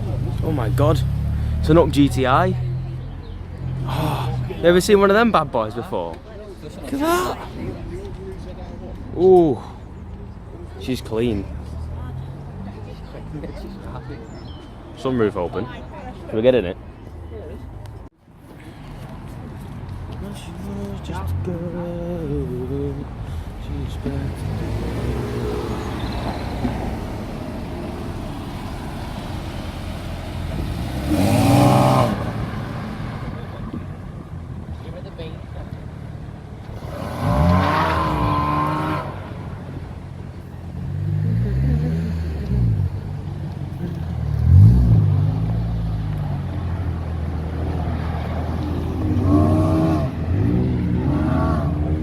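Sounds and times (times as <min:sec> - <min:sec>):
cars running low rumble: 0:00.0 - 0:52.0
car engine idling: 0:20.2 - 0:31.2
car engine revving: 0:23.6 - 0:33.8, 0:35.7 - 0:52.0.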